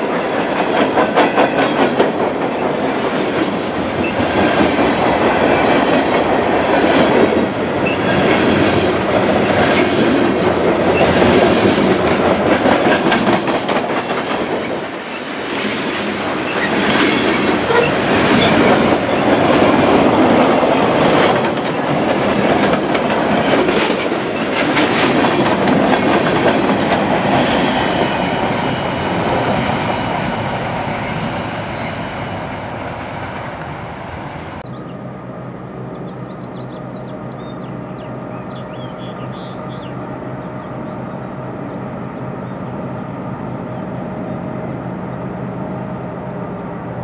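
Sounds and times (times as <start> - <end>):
train wheels clacking over rail joints: 0.0 - 28.6.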